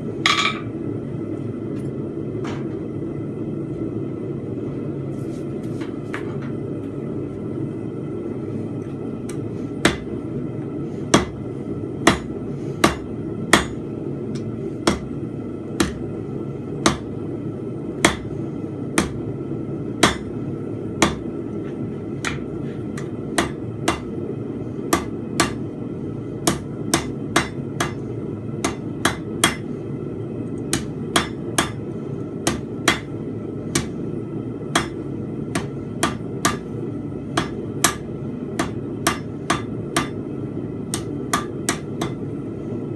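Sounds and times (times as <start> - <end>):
hammer striking steel on anvil: 0.2 - 0.7, 12.0 - 13.8, 15.8 - 16.0, 18.0 - 18.3, 20.0 - 20.3, 21.0 - 21.2, 24.9 - 25.6, 26.5 - 28.0, 28.6 - 29.7, 30.7 - 31.8, 32.4 - 33.1, 33.7 - 34.0, 34.7 - 36.7, 37.4 - 40.2, 40.9 - 42.3.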